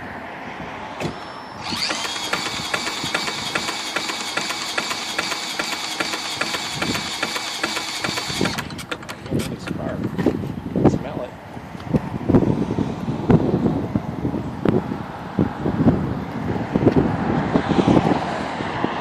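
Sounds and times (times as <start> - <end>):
engine high steady whine: 0.0 - 10.1
regular engine ticking: 1.0 - 10.2.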